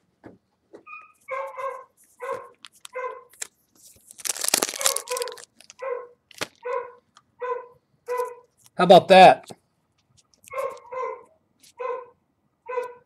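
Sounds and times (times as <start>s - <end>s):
loud rustling handling noise: 1.2s - 6.8s
dog barking: 1.3s - 3.3s, 4.7s - 8.5s, 10.5s - 13.0s.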